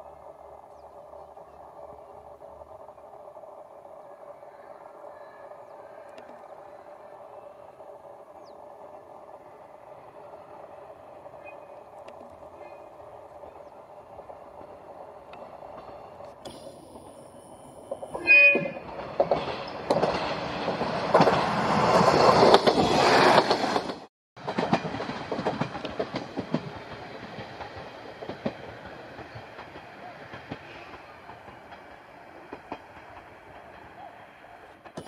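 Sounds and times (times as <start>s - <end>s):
train wheel clatter: 0.0s - 35.0s
train horn blast: 18.2s - 18.9s.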